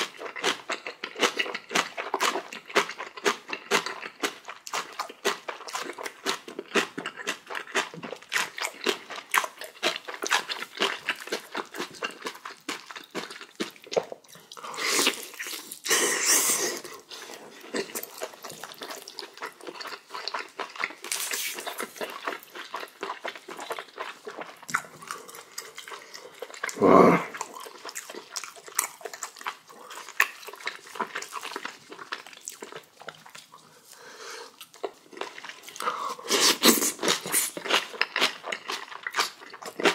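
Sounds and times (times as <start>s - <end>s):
chewing crunchy food: 0.0s - 39.9s
short loud vocal grunt: 26.8s - 27.3s
sharp breaths drawn in: 33.7s - 34.6s.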